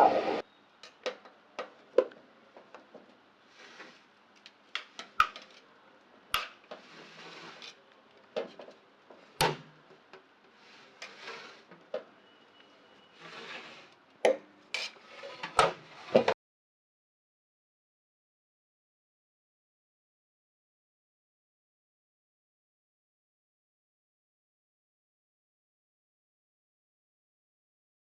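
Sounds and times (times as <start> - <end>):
utensil scraping pot: 6.7 - 7.8, 10.5 - 14.0, 14.7 - 16.3.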